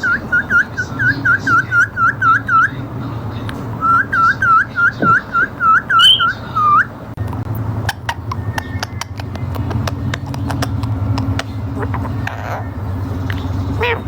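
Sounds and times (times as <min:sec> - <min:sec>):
scooping whistle notes: 0:03.8 - 0:06.9.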